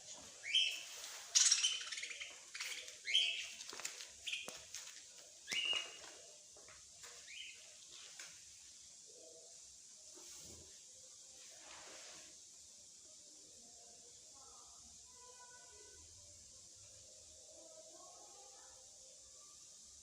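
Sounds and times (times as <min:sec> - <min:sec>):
songbirds chirping: 0:00.0 - 0:10.2.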